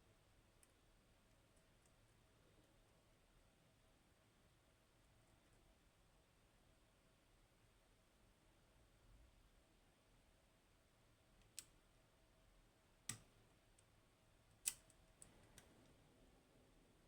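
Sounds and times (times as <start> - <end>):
lock pick clicking: 14.6 - 15.7.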